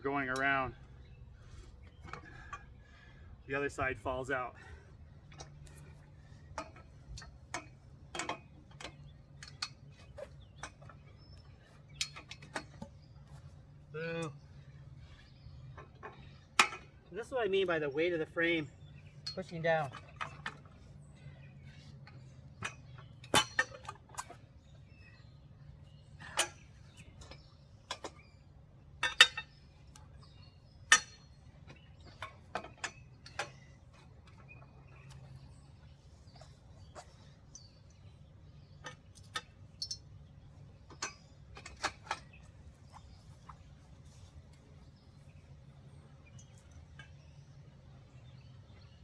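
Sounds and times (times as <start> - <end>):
metal frame parts clinking: 5.2 - 14.6, 15.6 - 24.9, 25.6 - 45.3.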